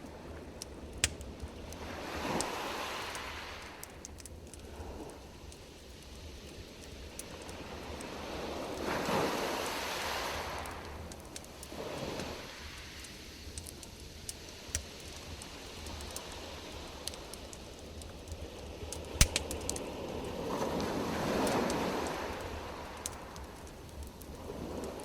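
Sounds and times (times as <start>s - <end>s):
campfire crackling: 0.0s - 25.0s
sharp loud fire crack: 19.1s - 19.8s.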